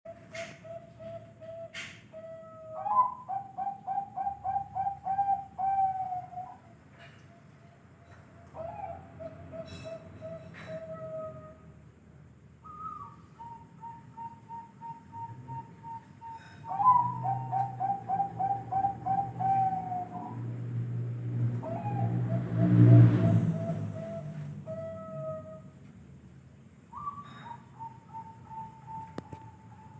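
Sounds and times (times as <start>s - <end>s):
dove cooing: 0.1s - 7.1s, 8.6s - 11.6s, 12.7s - 20.4s, 27.0s - 29.9s.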